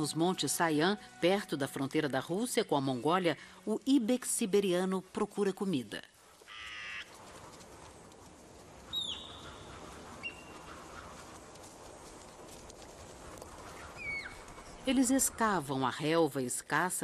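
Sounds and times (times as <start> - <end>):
buzzy bird call: 8.9 - 11.2, 13.7 - 14.8.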